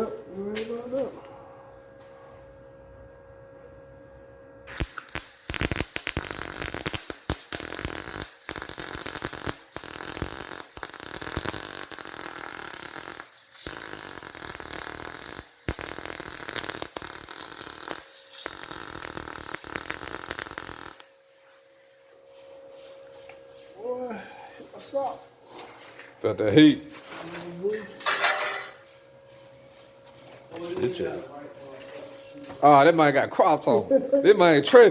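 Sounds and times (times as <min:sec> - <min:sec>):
welding arc crackling and sizzling: 0:04.7 - 0:25.2.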